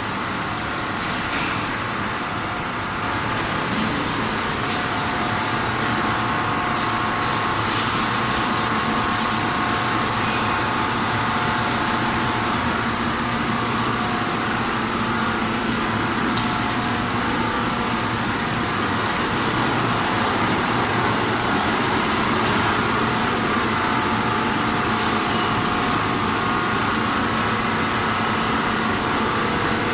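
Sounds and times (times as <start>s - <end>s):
machine humming: 8.8s - 29.9s.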